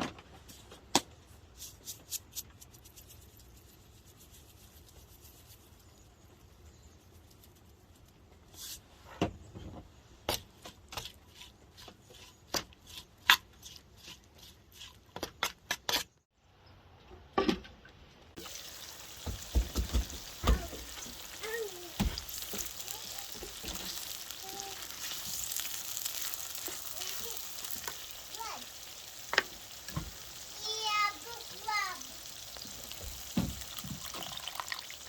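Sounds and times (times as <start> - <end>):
utensil knocking in pan: 18.4 - 24.0
food sizzling in a pan: 18.4 - 35.0.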